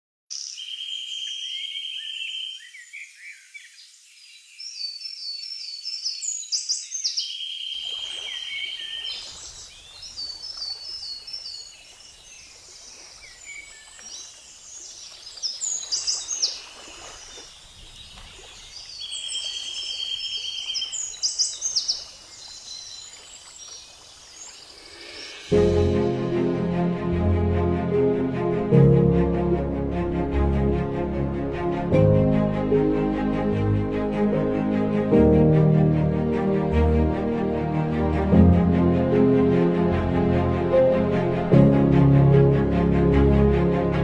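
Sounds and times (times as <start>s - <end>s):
birds singing: 0.3s - 25.5s.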